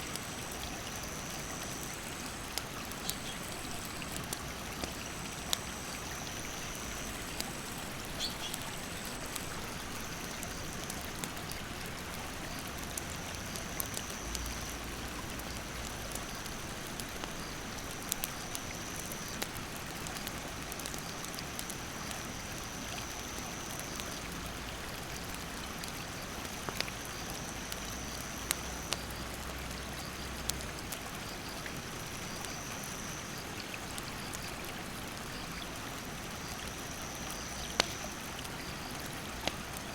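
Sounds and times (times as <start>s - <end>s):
wood fire crackling: 0.0s - 22.8s, 23.7s - 32.5s, 33.6s - 39.9s
insects buzzing: 0.2s - 10.8s.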